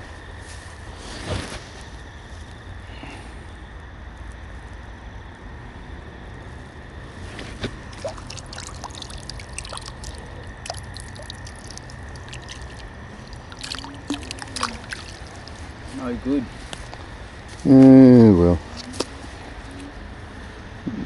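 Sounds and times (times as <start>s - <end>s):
water dripping and trickling: 7.6s - 16.0s.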